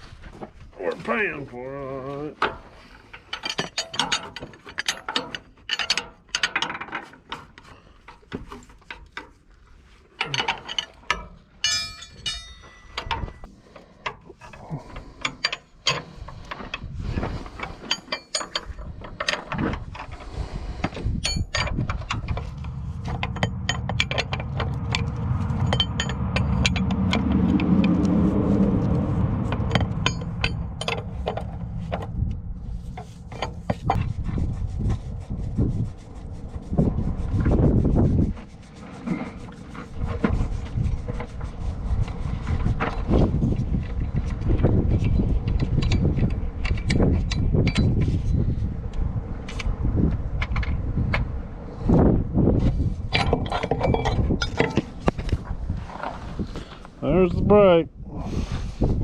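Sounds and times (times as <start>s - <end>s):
metal tools clinking: 2.4s - 7.5s, 10.2s - 13.5s, 17.7s - 20.1s, 21.2s - 28.0s, 29.5s - 32.1s, 53.1s - 54.9s
steady mechanical noise: 14.4s - 52.2s.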